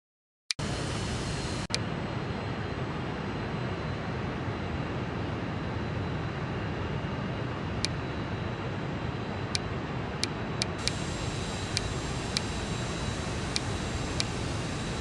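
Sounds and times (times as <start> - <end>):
strong wind: 0.6 - 15.0
sharp clicks: 10.2 - 12.6, 13.4 - 14.4.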